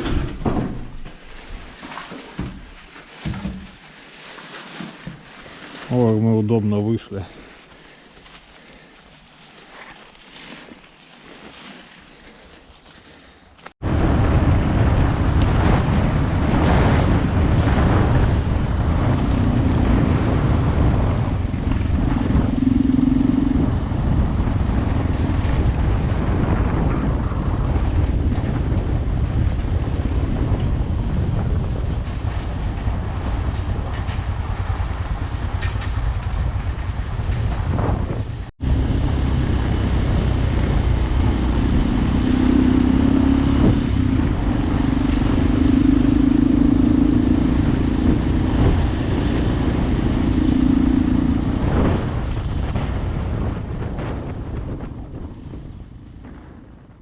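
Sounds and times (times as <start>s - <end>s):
motorcycle engine revving: 14.0s - 54.2s.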